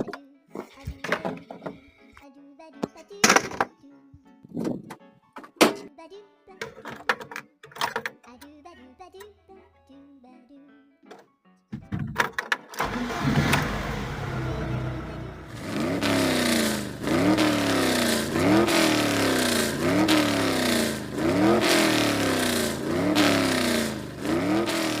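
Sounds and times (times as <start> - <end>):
car engine revving: 12.8 - 25.0.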